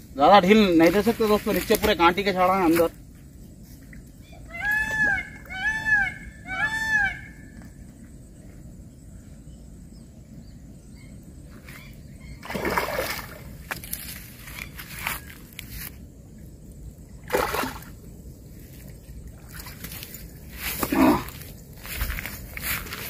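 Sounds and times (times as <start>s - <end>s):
bird calling: 4.2s - 7.7s
fish splashing at surface: 17.3s - 17.9s.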